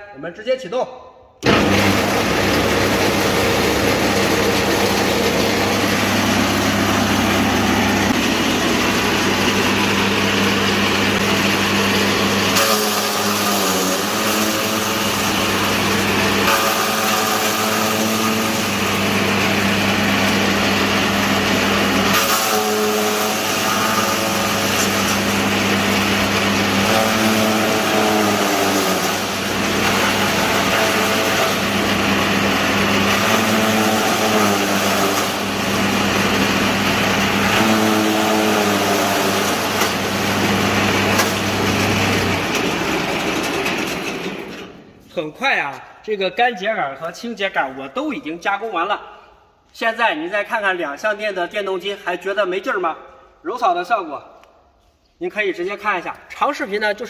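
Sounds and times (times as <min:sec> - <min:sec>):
electric motor hum: 0:01.4 - 0:44.4
rotor shredding corn stalks: 0:01.5 - 0:44.6.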